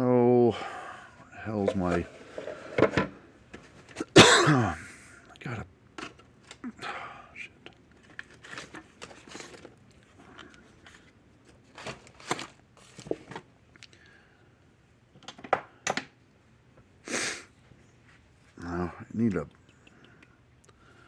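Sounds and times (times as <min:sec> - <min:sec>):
rustling scrape: 0:01.6 - 0:03.0.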